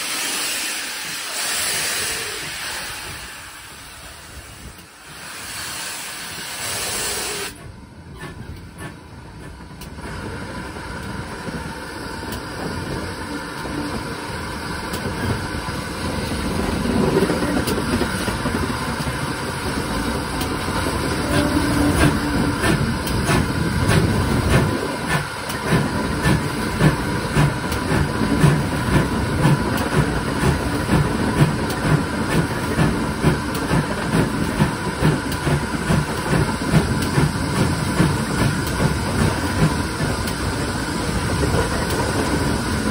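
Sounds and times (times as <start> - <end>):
steam hiss: 0.0 - 42.9
steam train rhythmic beat: 20.4 - 42.7.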